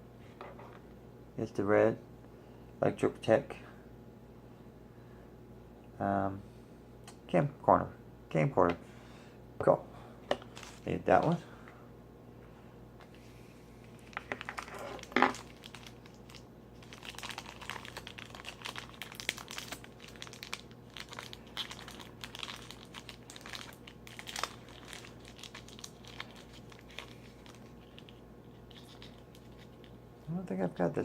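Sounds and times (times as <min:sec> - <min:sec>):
plastic packaging crinkling and tearing: 0:13.9 - 0:30.0.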